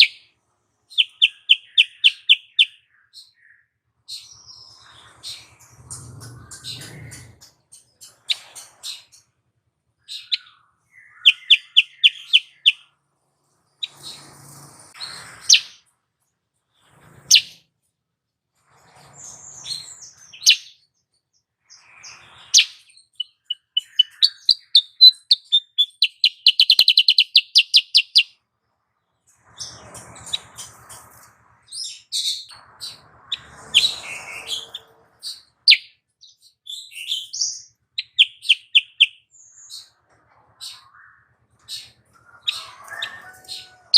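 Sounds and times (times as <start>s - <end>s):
bulbul chirps and trills: 0.9s - 3.6s, 22.5s - 28.4s, 35.2s - 39.3s.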